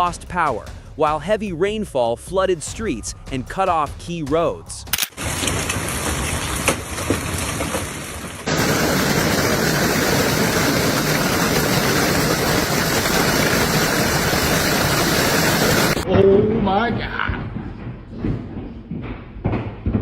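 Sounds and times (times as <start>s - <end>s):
heavy rain pouring: 5.2s - 16.1s.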